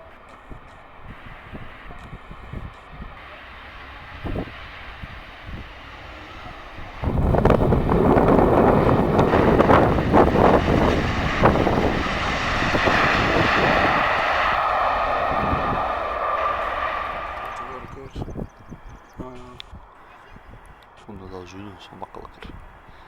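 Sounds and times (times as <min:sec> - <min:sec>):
jet engines roaring: 0:00.0 - 0:18.2.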